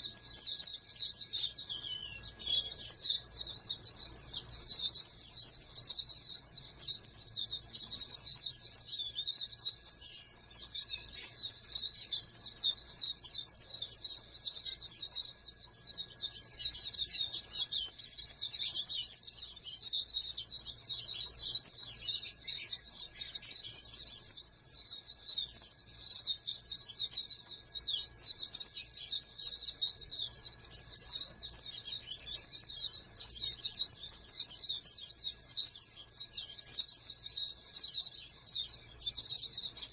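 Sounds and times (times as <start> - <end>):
bird high-pitched twittering song: 0.0 - 39.9.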